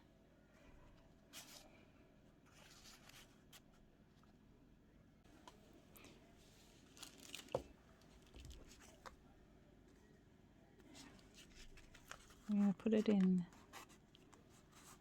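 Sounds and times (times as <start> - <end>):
paper and card rustling: 6.7 - 9.2, 10.8 - 15.0.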